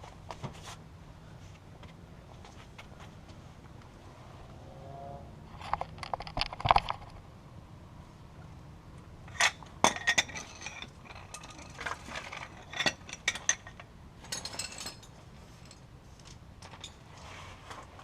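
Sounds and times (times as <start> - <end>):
metal hand tools clinking: 9.3 - 15.9.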